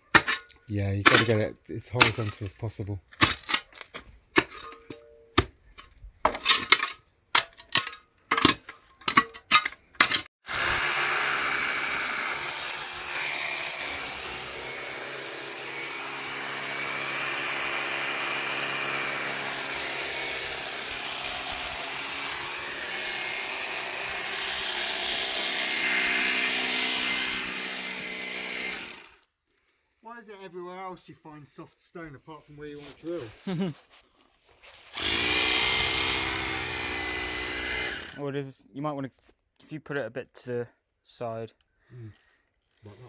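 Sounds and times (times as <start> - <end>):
hammer drill boring into stone: 10.2 - 29.2, 34.9 - 38.2.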